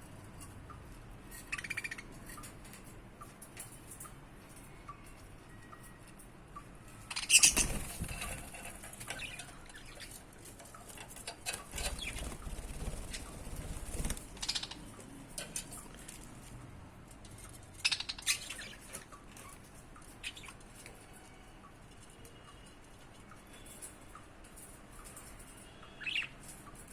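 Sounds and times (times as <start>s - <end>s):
budgie flapping wings: 7.5s - 8.5s, 11.8s - 14.7s.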